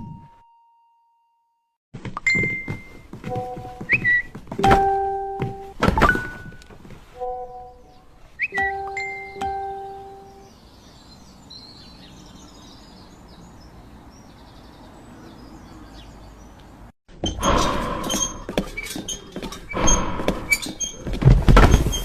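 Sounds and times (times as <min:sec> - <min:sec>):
faint birds chirping: 0:06.5 - 0:21.2.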